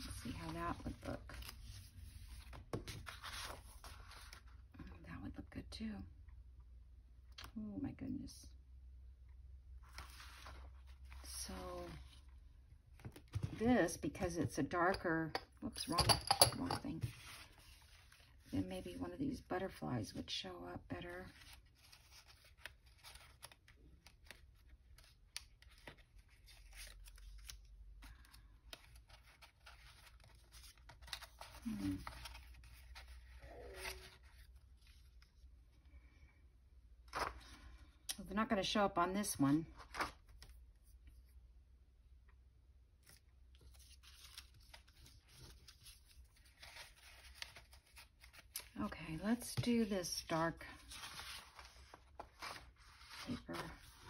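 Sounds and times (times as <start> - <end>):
paper rustling: 21.2 - 35.3, 43.0 - 54.0.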